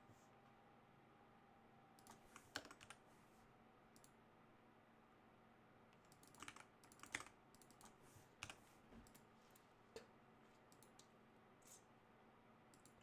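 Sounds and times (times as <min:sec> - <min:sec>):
faint typing on keyboard: 0:02.0 - 0:03.0, 0:03.9 - 0:04.2, 0:05.9 - 0:11.8, 0:12.7 - 0:13.0.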